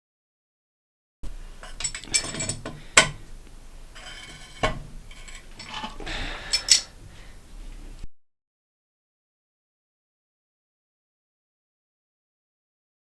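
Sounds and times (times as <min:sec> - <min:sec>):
scraping: 0:01.2 - 0:08.0
plastic fittings clicking in toilet tank: 0:01.6 - 0:07.3.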